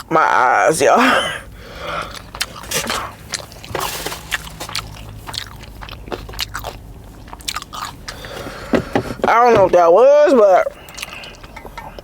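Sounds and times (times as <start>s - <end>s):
person chewing food: 1.4s - 9.2s, 10.7s - 12.0s
mouth clicks and crunches: 2.0s - 9.2s, 10.6s - 12.0s.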